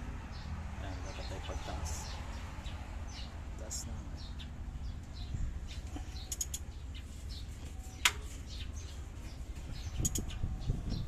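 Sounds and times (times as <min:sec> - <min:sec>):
birds chirping: 0:00.0 - 0:11.0
steady low rumble: 0:00.0 - 0:11.0
sharp click: 0:06.3 - 0:06.7, 0:10.0 - 0:10.4.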